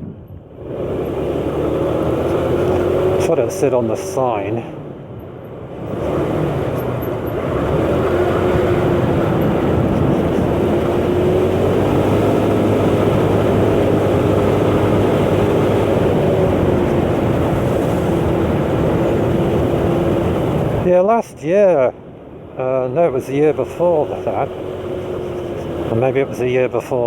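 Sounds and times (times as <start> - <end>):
wind and road noise: 0.0 - 27.0
motor scooter engine cruising: 0.4 - 20.9, 22.7 - 27.0.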